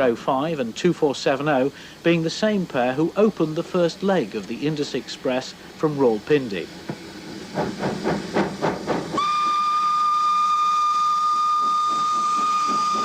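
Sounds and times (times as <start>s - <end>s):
steam locomotive chuffing: 1.1s - 13.0s
steam whistle blast: 9.2s - 13.0s.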